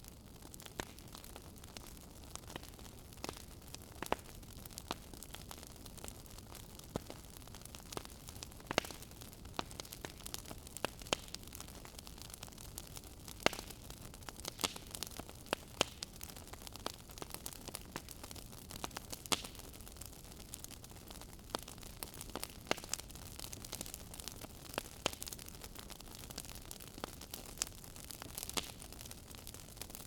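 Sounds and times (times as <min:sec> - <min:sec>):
soft hiss of burning: 0:00.0 - 0:30.0
wood fire crackling: 0:00.0 - 0:30.0.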